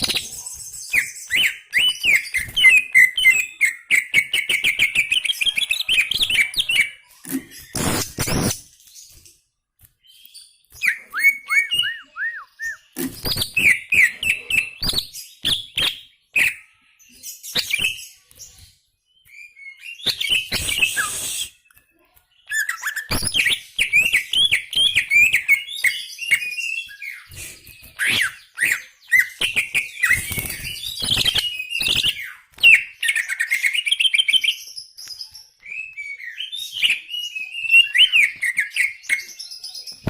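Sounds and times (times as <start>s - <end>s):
leafbird singing whistled notes: 10.0s - 16.7s, 19.1s - 21.8s, 22.4s - 40.0s.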